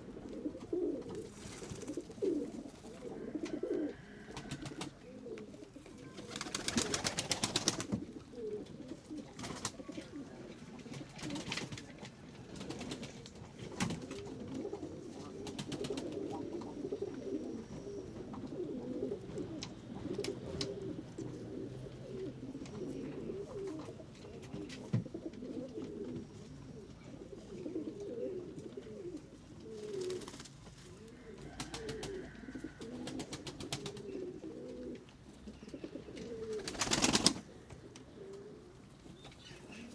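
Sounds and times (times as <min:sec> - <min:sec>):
pigeons cooing: 0:00.0 - 0:39.9
flurry of wingbeats: 0:01.1 - 0:02.2, 0:04.3 - 0:04.9, 0:06.1 - 0:08.0, 0:09.4 - 0:10.1, 0:10.8 - 0:14.4, 0:15.4 - 0:16.3, 0:29.7 - 0:34.1, 0:36.4 - 0:37.5.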